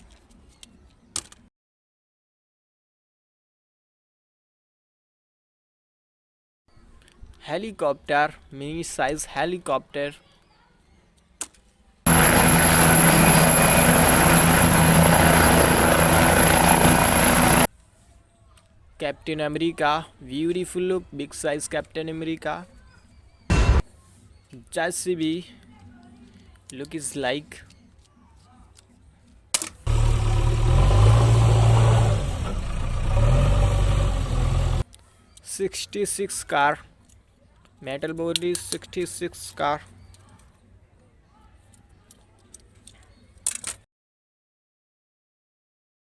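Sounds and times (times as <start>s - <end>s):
toy helicopter rotor sound: 12.1s - 17.7s
toy engine sound effect revving: 29.9s - 34.8s.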